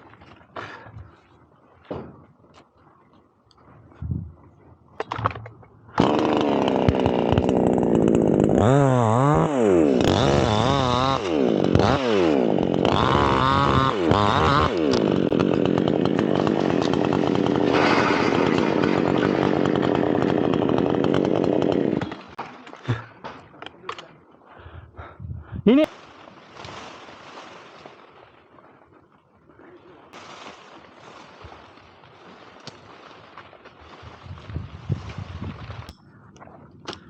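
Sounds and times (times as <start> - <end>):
chainsaw cutting wood: 5.9 - 23.5.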